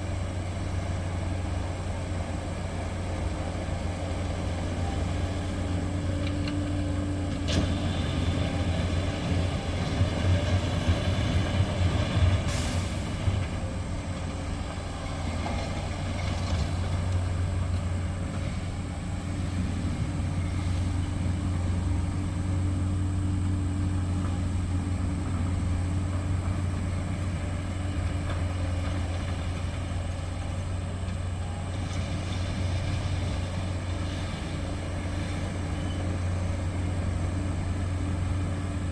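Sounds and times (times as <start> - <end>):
heavy diesel engines running: 0.0 - 38.9
brief hiss: 12.4 - 13.2.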